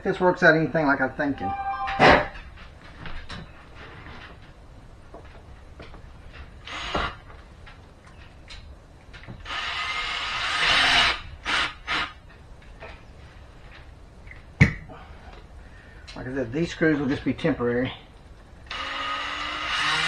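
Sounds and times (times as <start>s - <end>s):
power drill driving a screw: 9.4s - 12.2s, 18.7s - 20.0s.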